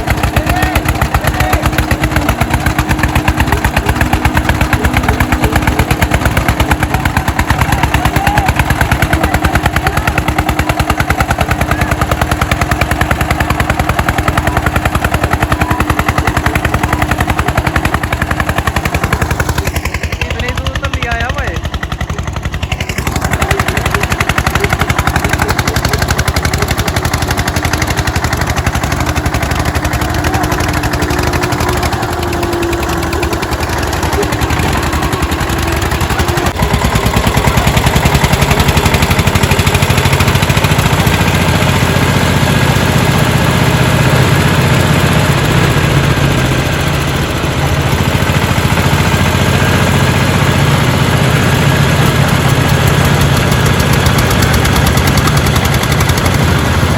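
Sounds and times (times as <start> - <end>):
tractor diesel engines chugging: 0.0 - 56.9.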